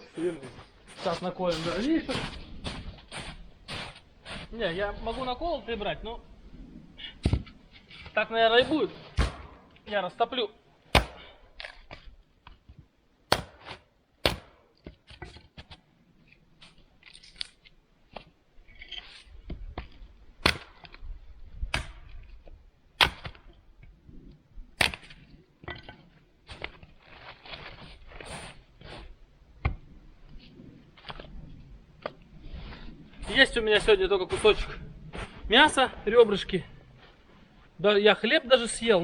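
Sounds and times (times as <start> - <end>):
wood rustling and handling: 6.9 - 14.0, 14.6 - 37.8
wood cracking: 7.0 - 37.8.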